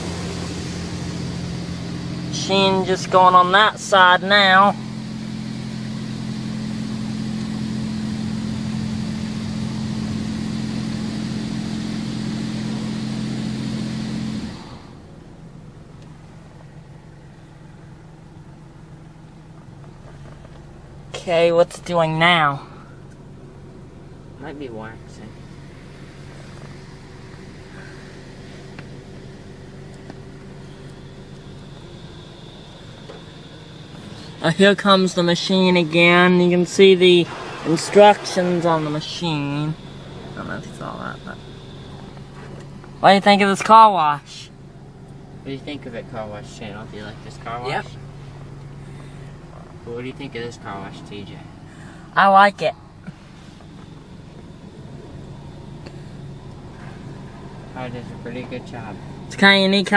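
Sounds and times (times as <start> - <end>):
car wash pump humming: 0.0 - 59.9
water spray hissing on car: 4.8 - 14.8, 25.7 - 43.0.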